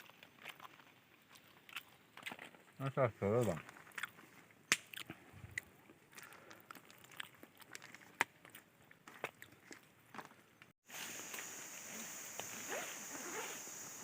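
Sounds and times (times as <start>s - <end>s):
chewing food: 0.0s - 2.8s, 3.4s - 10.3s.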